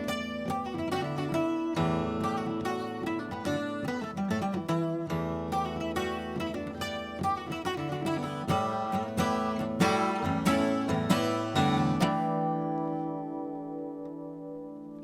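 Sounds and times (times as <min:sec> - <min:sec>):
fingerpicked acoustic guitar: 0:00.0 - 0:15.0.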